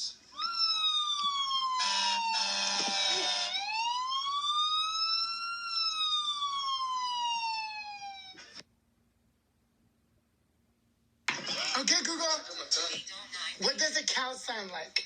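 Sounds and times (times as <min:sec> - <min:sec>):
ambulance siren wailing: 0:00.4 - 0:08.6.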